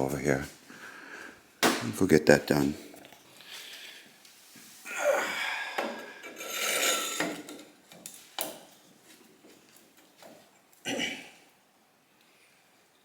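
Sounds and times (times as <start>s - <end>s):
hard parts rubbing and scraping: 6.3s - 7.6s.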